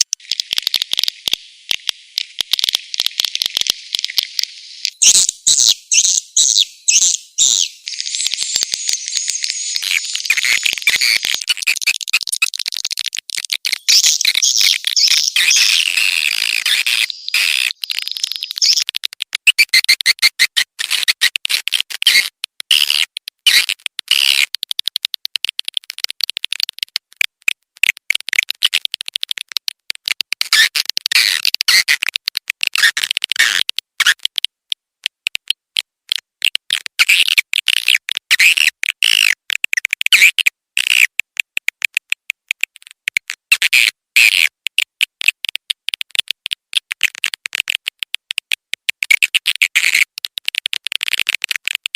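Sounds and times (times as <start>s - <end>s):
swiftlets twittering: 4.8s - 12.5s.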